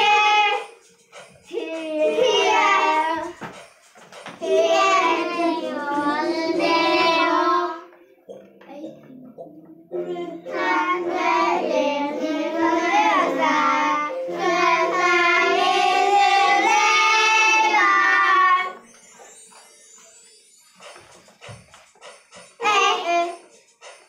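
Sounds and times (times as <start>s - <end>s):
children singing: 0.0s - 0.8s, 1.5s - 3.4s, 4.4s - 8.0s, 9.0s - 18.8s
backing music: 0.0s - 24.0s.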